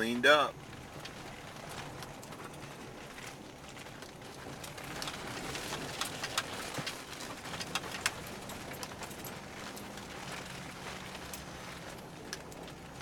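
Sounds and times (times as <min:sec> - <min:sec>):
faint low engine hum: 0:00.0 - 0:13.0
road noise: 0:00.0 - 0:13.0.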